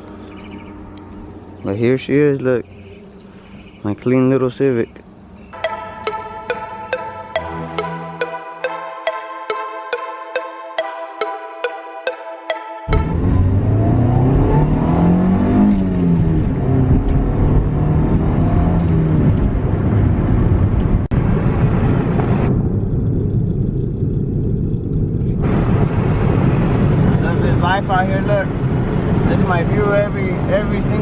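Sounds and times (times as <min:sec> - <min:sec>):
car engine driving: 0:13.0 - 0:20.9.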